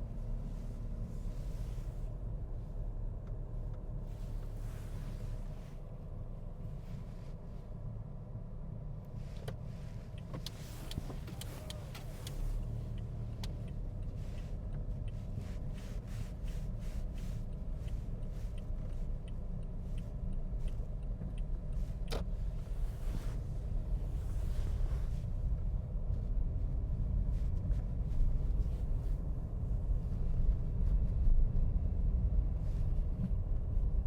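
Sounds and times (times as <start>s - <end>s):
car rumbling on road: 0.0s - 34.0s.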